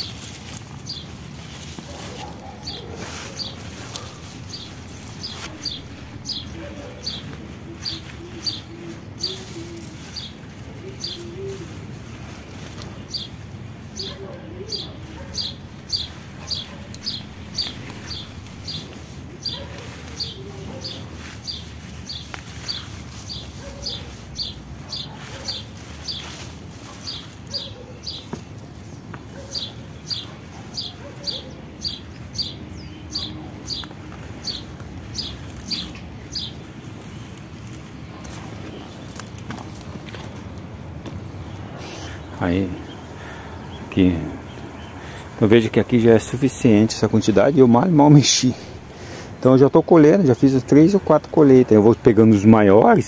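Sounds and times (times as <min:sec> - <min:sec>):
soft low bird calls: 0:01.9 - 0:26.4, 0:29.3 - 0:39.2
bird calling short high notes: 0:35.6 - 0:36.6.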